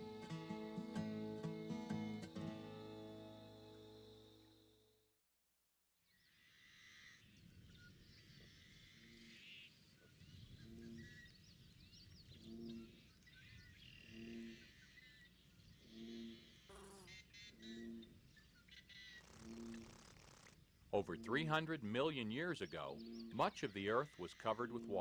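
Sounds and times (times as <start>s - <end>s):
birds chirping and twittering: 6.1s - 25.0s
low two-toned frog croak: 14.0s - 14.7s, 15.9s - 18.2s, 19.3s - 20.4s.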